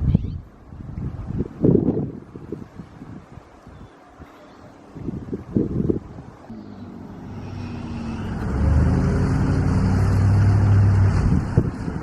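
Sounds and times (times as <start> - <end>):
engine humming: 6.0 - 12.0.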